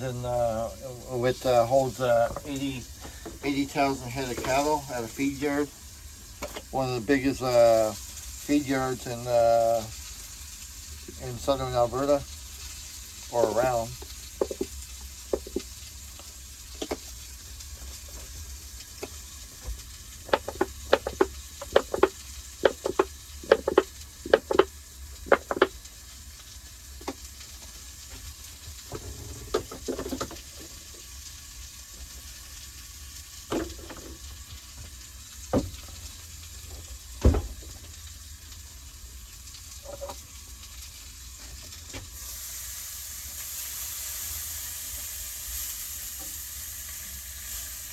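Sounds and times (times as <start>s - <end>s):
sausages sizzling in a frying pan: 0.0s - 47.9s
sharp pops and clicks: 14.0s - 17.2s, 18.8s - 25.9s.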